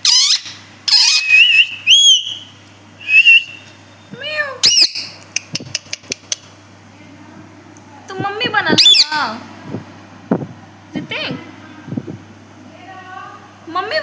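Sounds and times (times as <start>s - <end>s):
parrot meow-like calls: 0.0s - 2.4s
parrot whistled calls: 0.0s - 5.2s, 8.8s - 9.2s.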